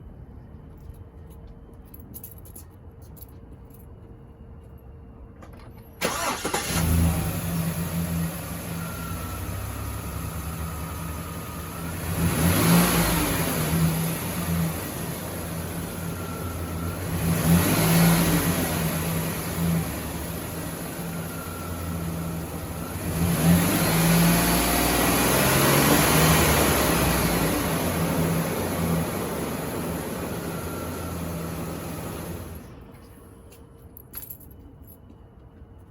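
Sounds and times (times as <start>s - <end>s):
van engine starting and idling: 5.4s - 33.0s
engine revving: 6.0s - 8.8s, 9.4s - 32.6s.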